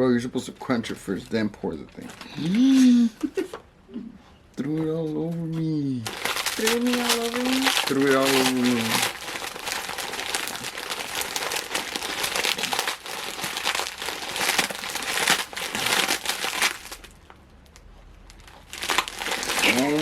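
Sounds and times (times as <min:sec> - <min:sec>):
plastic bag crinkling: 0:06.0 - 0:20.0
dry noodles crushed and shaken: 0:06.1 - 0:17.1, 0:18.4 - 0:20.0.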